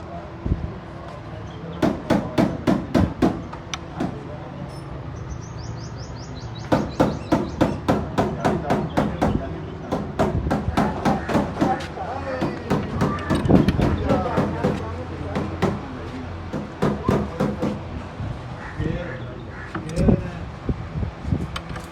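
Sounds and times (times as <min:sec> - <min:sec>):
rapid hammer blows: 0:01.8 - 0:04.2, 0:06.7 - 0:15.9.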